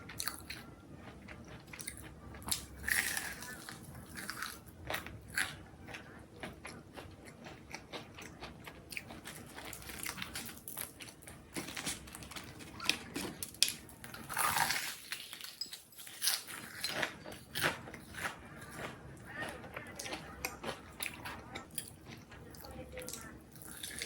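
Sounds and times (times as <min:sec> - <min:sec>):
chewing crunchy food: 0:00.0 - 0:24.0.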